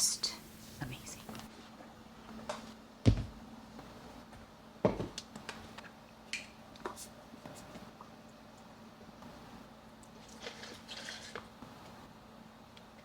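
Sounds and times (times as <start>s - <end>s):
faint hum: 0.0s - 4.7s.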